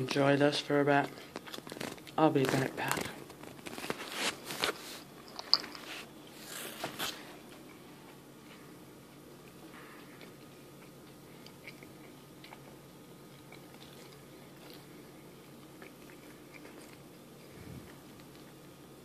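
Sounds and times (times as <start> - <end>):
faint hum: 0.0 - 19.0
chewing with wet clicks: 9.2 - 18.8.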